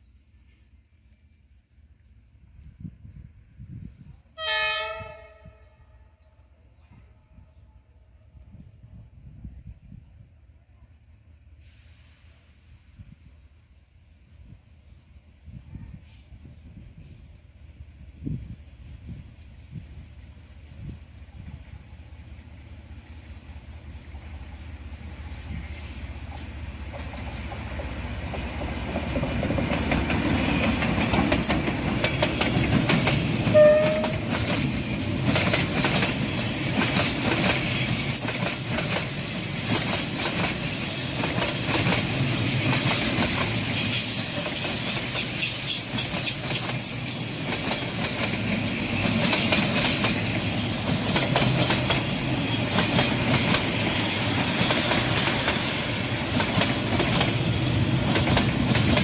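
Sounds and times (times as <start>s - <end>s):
train rumbling past: 0.0s - 59.0s
wheels clicking over rail joints: 26.3s - 43.6s, 44.4s - 59.0s
high wheel squeal: 39.4s - 48.1s.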